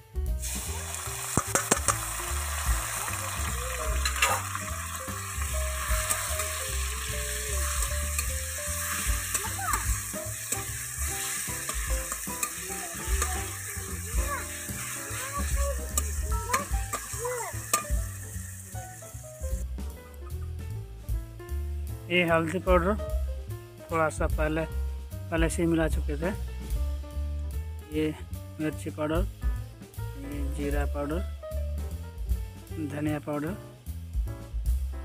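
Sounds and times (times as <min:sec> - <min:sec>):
onions sizzling in hot oil: 0:00.4 - 0:19.6
metal spatula scraping a pan: 0:04.0 - 0:18.6.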